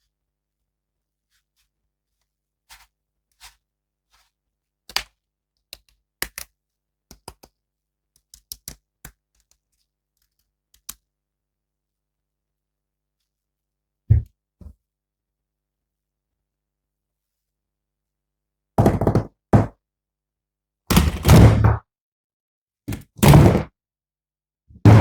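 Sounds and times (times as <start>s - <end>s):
plastic toy figures clicking: 8.2s - 8.8s.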